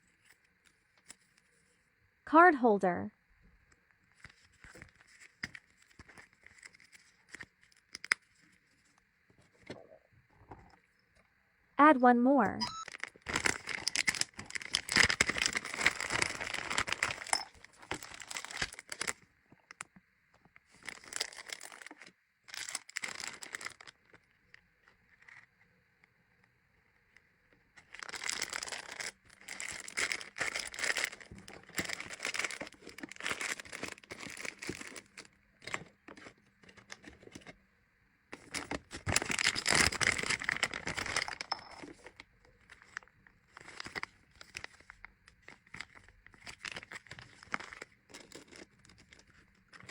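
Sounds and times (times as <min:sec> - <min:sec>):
packaging crinkling: 0:04.1 - 0:08.6, 0:12.7 - 0:19.8, 0:20.7 - 0:24.3, 0:27.8 - 0:37.2, 0:38.4 - 0:49.9.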